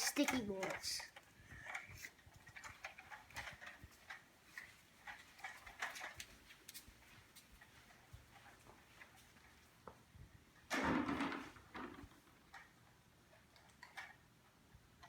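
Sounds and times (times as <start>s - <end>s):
soft clicks and rustles: 0.0s - 15.0s.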